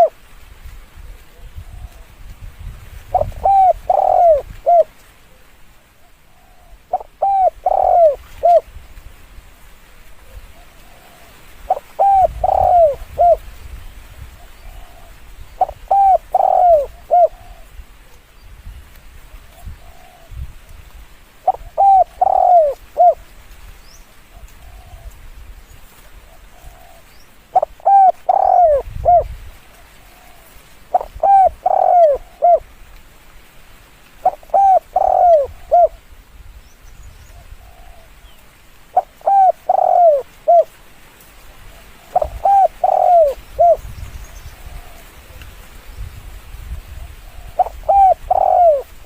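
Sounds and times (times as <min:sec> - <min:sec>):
dove cooing: 0:03.1 - 0:08.7, 0:10.2 - 0:13.4, 0:14.4 - 0:18.2, 0:19.5 - 0:20.4, 0:21.4 - 0:23.3, 0:24.3 - 0:25.2, 0:26.2 - 0:32.7, 0:34.2 - 0:36.1, 0:37.3 - 0:38.2, 0:38.9 - 0:40.8, 0:41.6 - 0:45.6, 0:46.9 - 0:49.0.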